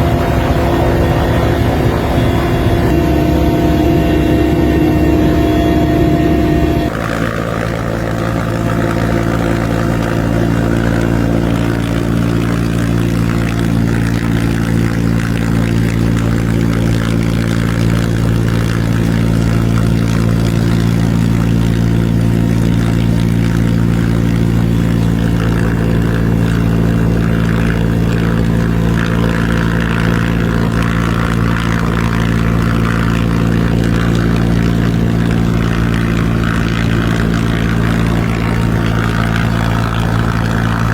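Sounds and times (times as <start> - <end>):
heavy engine droning: 0.0 - 40.9.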